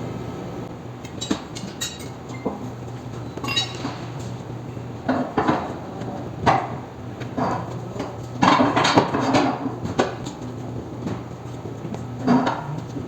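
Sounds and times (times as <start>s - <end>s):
metallic clanks of tools: 3.4s - 4.3s.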